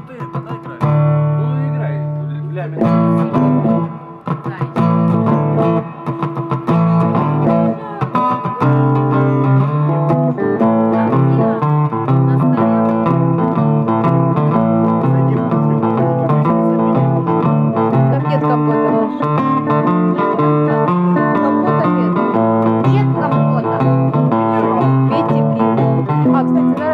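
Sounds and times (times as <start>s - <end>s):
blues guitar notes: 0.0s - 26.9s
repeating low bass line: 8.9s - 26.9s.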